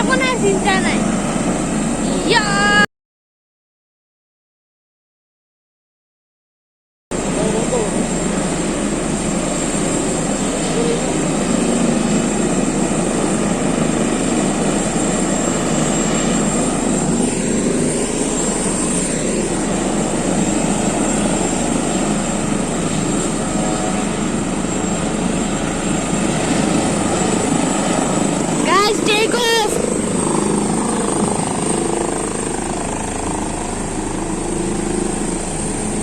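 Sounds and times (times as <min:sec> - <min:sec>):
helicopter rotor and engine running: 0:00.0 - 0:02.9, 0:07.1 - 0:36.0.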